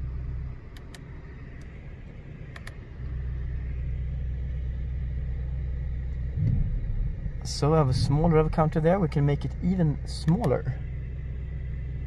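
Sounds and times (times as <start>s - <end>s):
car engine idling: 0.0s - 12.0s
light control clicks: 0.7s - 1.7s, 2.5s - 2.8s, 10.2s - 10.6s.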